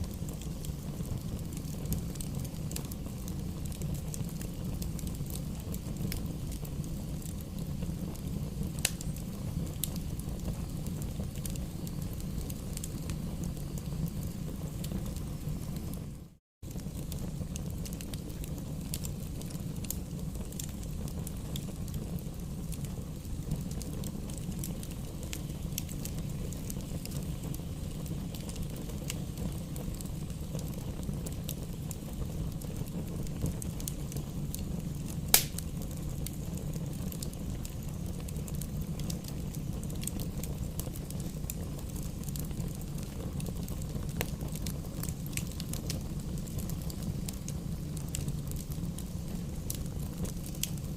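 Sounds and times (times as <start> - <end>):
campfire crackling: 0.0 - 50.9
loud fire pop: 35.3 - 35.7.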